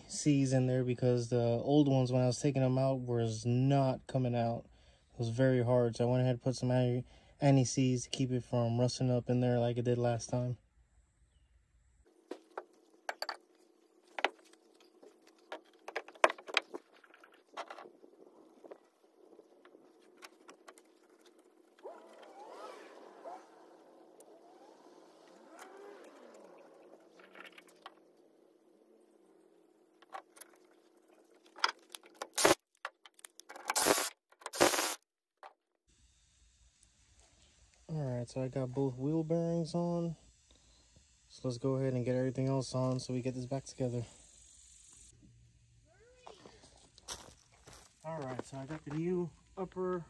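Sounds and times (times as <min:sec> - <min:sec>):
loud short noise bursts: 0:32.4 - 0:32.6, 0:33.7 - 0:35.0
faint steady hum: 0:35.9 - 0:50.0.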